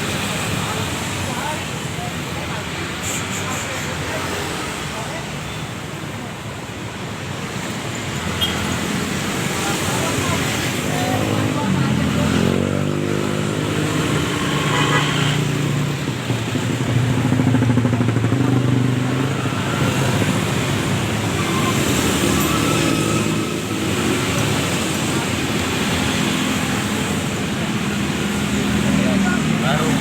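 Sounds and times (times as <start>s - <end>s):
motorcycle engines passing: 0.0s - 30.0s
traffic noise: 0.0s - 30.0s.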